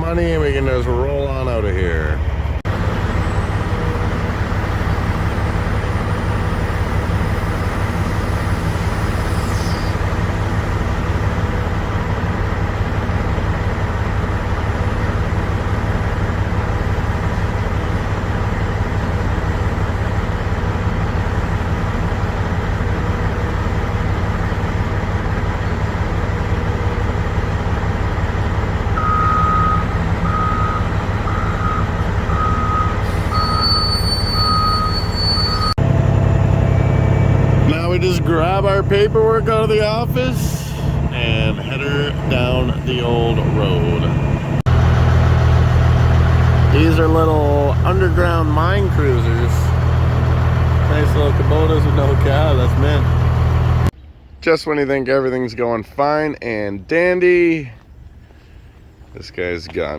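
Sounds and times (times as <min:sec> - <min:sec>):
diesel truck engine idling: 0:00.0 - 0:54.3
reversing alarm beeping: 0:29.0 - 0:35.8.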